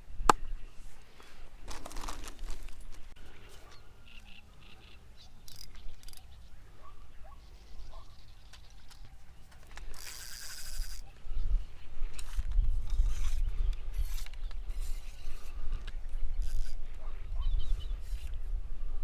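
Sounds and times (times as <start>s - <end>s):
birds chirping: 0.1s - 10.0s, 11.0s - 18.3s
brief rustling: 1.2s - 3.8s
low wind rumble: 11.1s - 19.0s.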